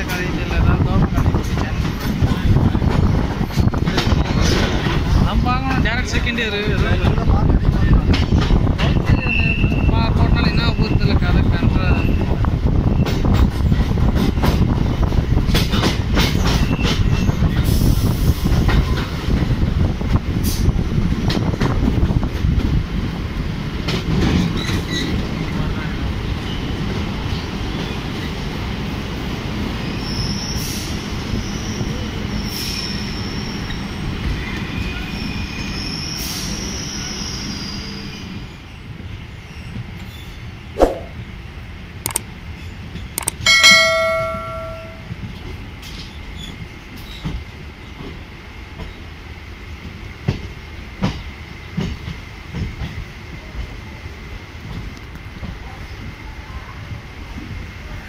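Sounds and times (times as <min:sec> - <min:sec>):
train wheels rumbling and rattling: 0:00.0 - 0:58.0
loud metallic clang: 0:43.2 - 0:45.1.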